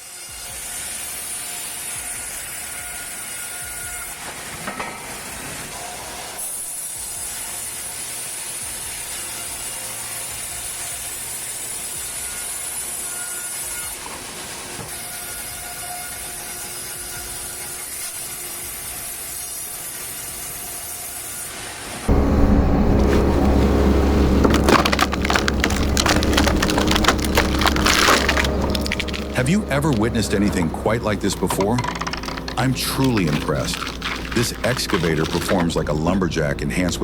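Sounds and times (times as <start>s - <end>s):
band saw cutting log: 22.1s - 37.0s.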